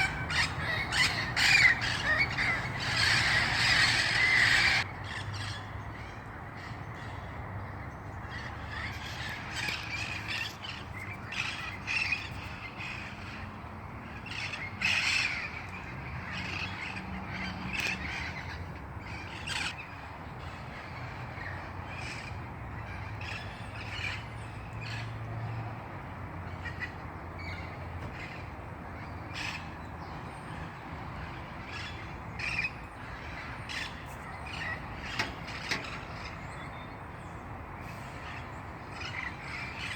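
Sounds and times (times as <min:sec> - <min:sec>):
parrots squawking: 0:00.0 - 0:05.2.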